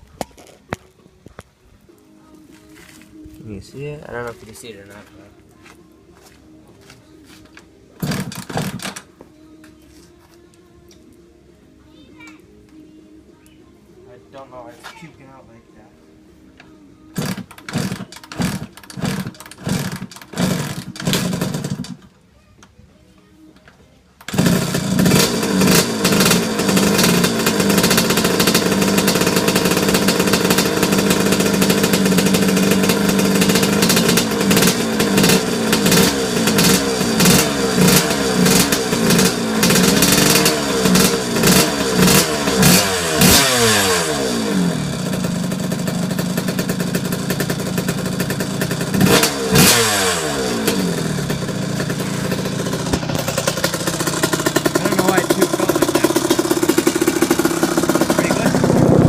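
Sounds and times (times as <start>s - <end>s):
motocross engine revving: 8.0s - 9.0s, 17.1s - 22.0s, 24.3s - 59.0s.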